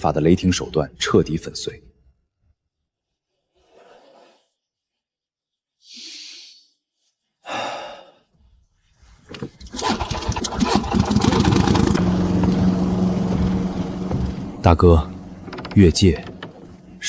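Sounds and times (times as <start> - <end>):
engine starting and running: 9.3 - 17.0.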